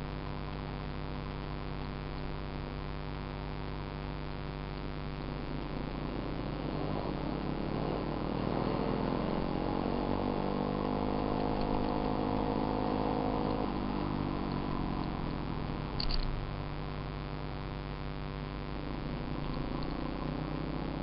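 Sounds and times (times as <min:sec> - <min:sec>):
dirt bike engine revving: 0:05.7 - 0:16.1.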